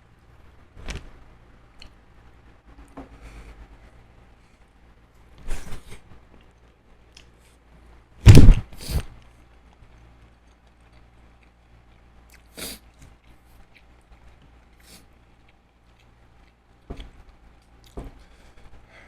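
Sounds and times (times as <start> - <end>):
close eating mouth sounds: 10.5 - 18.0.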